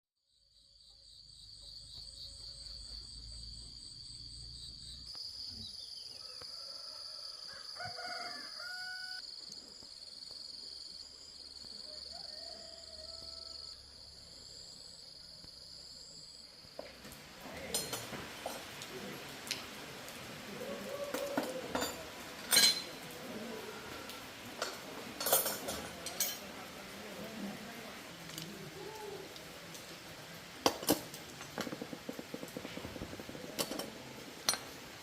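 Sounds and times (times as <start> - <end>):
rooster crowing: 6.2 - 9.2, 11.8 - 13.9, 20.5 - 22.5
metal clinks and knocks: 33.5 - 34.8.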